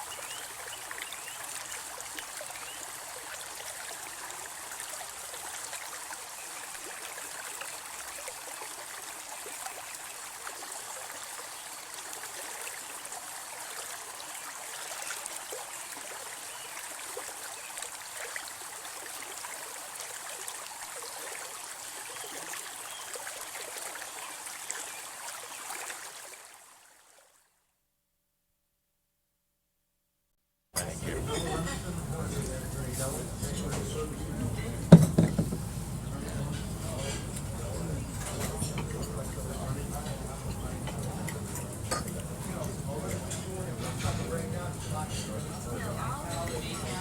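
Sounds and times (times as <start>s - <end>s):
brook water running over stones: 0.0s - 27.5s, 30.8s - 47.0s
small water splashes: 0.0s - 27.6s.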